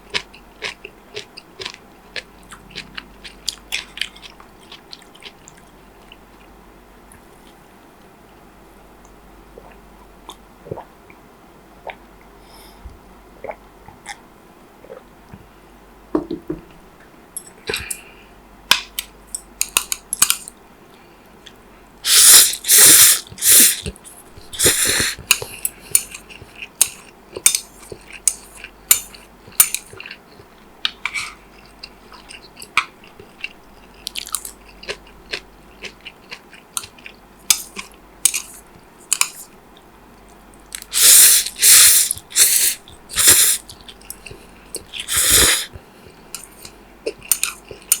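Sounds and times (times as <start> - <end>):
wet chewing and crisp bites: 0.1 - 6.5, 22.6 - 38.6, 40.8 - 48.0
loud noisy bursts: 22.1 - 23.8.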